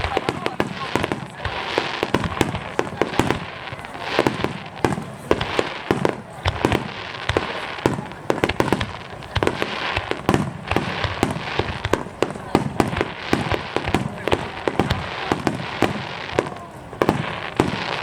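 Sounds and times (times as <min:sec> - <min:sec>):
fireworks bangs: 0:00.0 - 0:18.0
fireworks crackling: 0:00.0 - 0:18.0.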